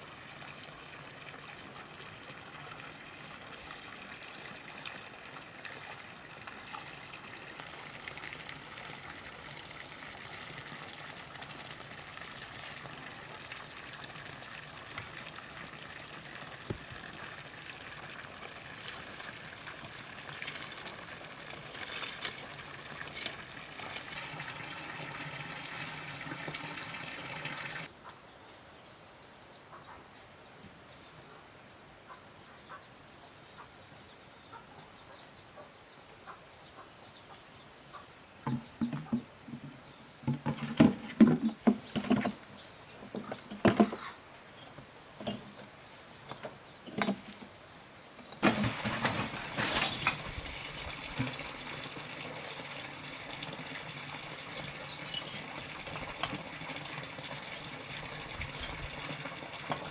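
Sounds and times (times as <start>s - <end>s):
water running and splashing: 0.0s - 27.9s, 48.4s - 59.9s.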